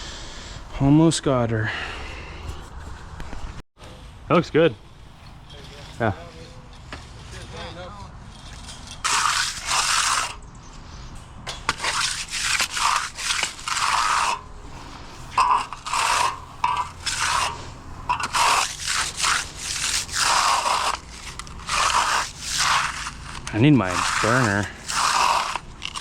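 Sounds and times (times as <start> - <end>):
tool scraping fresh concrete: 5.5 - 10.4, 11.5 - 26.0.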